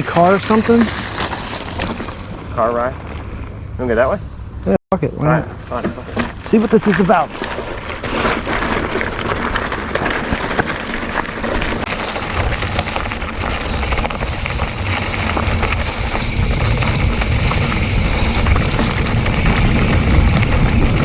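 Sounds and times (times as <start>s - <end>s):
bike and chain rattling: 0.0s - 4.5s, 5.2s - 21.0s
bike tyres on dirt trail: 0.0s - 21.0s
wind buffeting microphone: 7.6s - 21.0s.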